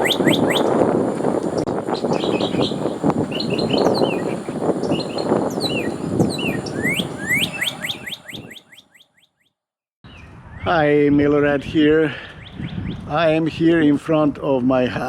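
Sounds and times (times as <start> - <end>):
rising whistled bird notes: 0.0 - 0.7, 1.9 - 9.4
songbirds chirping and singing: 0.0 - 0.8, 1.4 - 9.3
wind rumble on microphone: 0.0 - 8.8, 10.1 - 15.0.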